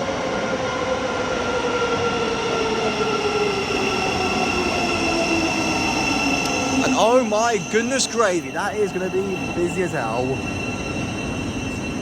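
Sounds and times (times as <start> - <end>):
electric train whine: 0.0 - 12.0
train rumbling: 0.0 - 12.0.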